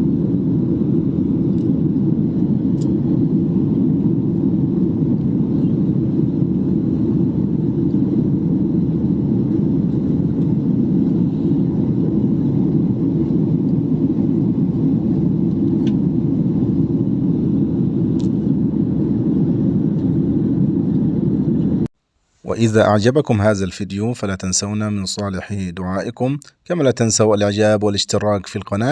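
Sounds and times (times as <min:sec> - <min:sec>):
airliner cabin drone: 0:00.0 - 0:21.9.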